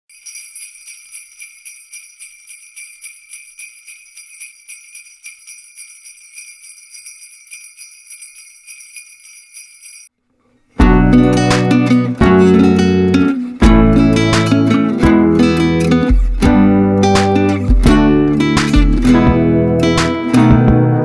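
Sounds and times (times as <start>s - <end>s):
jingle bells shaking: 0.0s - 10.1s, 15.4s - 19.2s
strummed guitar music: 10.8s - 21.0s.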